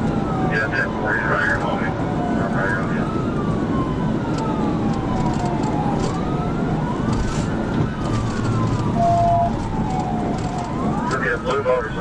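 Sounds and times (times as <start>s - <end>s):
police siren wailing: 0.0s - 12.0s
vehicle engine and road noise: 0.0s - 12.0s.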